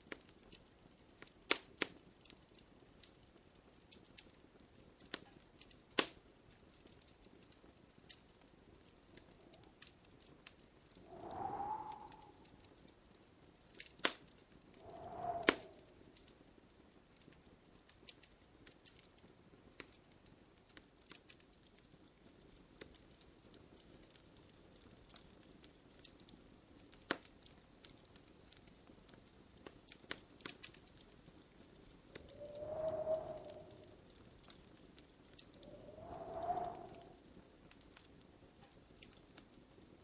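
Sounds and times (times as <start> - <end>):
wood fire crackling: 0.0 - 40.0
soft hiss: 8.0 - 16.6, 30.5 - 39.5.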